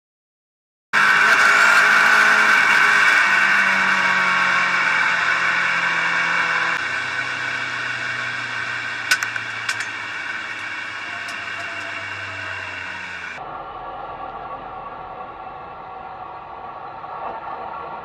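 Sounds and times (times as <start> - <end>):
race car engine: 0.9 - 18.0
sharp clicks: 9.0 - 13.4.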